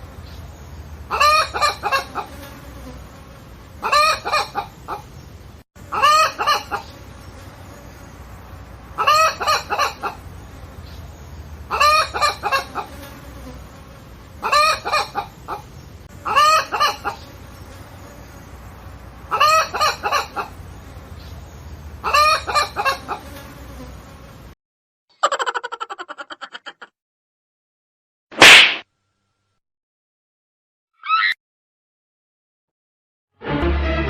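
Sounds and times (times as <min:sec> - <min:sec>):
chicken calling: 0:01.1 - 0:02.4, 0:03.8 - 0:05.2, 0:05.9 - 0:07.0, 0:09.0 - 0:10.2, 0:11.7 - 0:13.0, 0:14.4 - 0:17.3, 0:19.3 - 0:20.6, 0:22.0 - 0:23.2, 0:25.2 - 0:26.9, 0:31.0 - 0:31.4.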